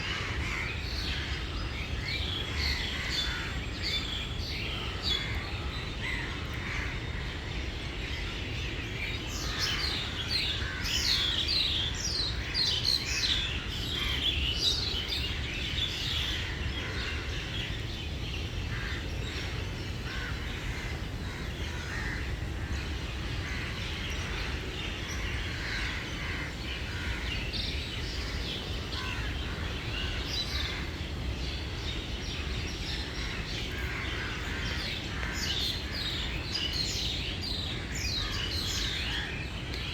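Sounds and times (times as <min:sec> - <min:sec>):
birds chirping: 0:08.1 - 0:39.9.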